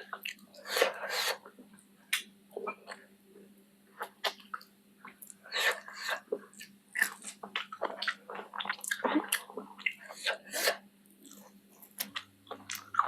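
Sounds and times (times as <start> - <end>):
wet chewing and smacking: 4.0 - 10.4, 11.2 - 13.0.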